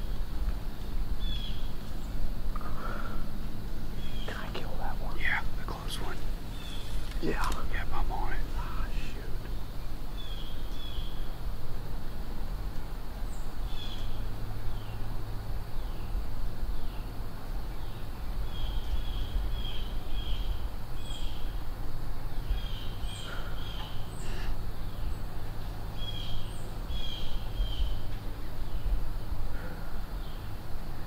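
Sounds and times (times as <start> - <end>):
birds chirping: 0.0 - 11.9, 12.6 - 31.0
steady low rumble: 0.0 - 13.3.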